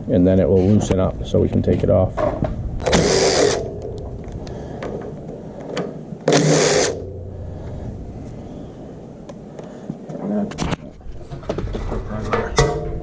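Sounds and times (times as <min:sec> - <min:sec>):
impact wrench bursts: 0:02.8 - 0:04.2, 0:06.2 - 0:07.5.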